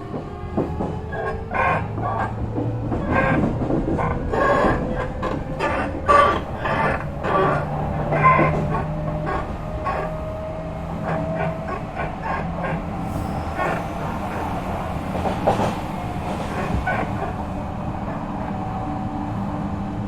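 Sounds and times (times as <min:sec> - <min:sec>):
wheels clicking over rail joints: 0:00.0 - 0:10.2
electric train running noise: 0:00.0 - 0:20.0.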